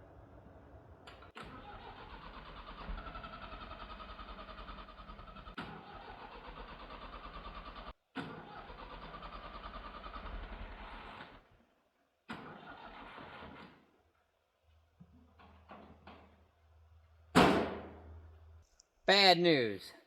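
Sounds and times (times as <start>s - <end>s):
diesel engine cranking on starter: 1.0s - 11.5s, 12.3s - 13.9s.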